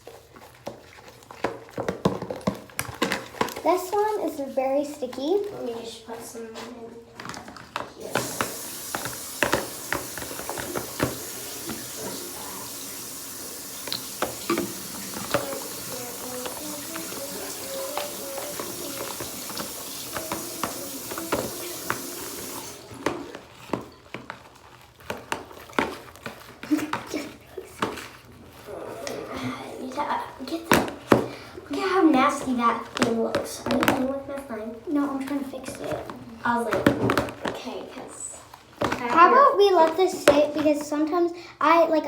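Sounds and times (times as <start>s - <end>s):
clicks and knocks of handling: 0.1s - 3.9s
tap water running: 8.0s - 27.9s, 29.4s - 38.2s.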